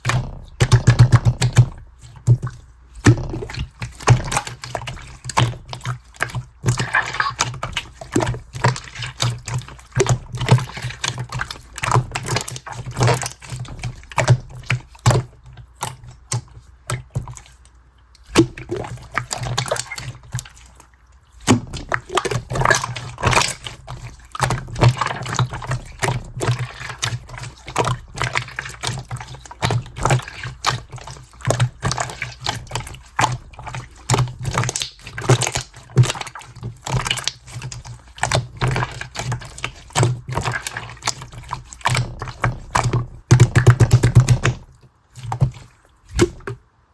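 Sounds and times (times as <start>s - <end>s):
slime squeezed by hand: 0.0s - 15.2s.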